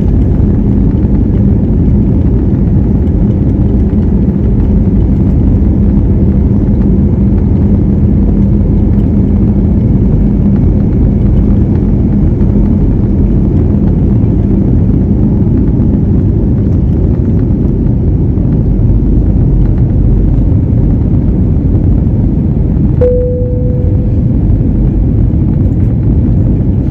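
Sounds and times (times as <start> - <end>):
jet engines rumbling: 0.0 - 26.9
ringing ding: 23.0 - 24.1.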